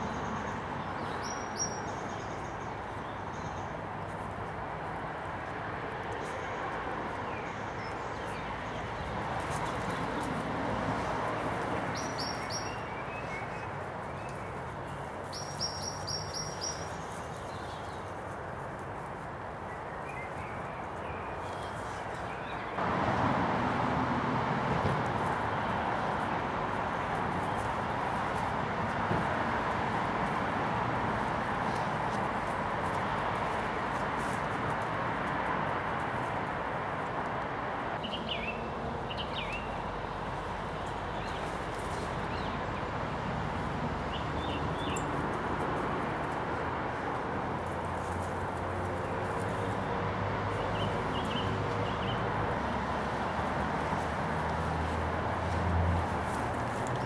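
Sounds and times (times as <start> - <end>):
small songbird calling: 11.9 - 14.4, 15.3 - 17.9.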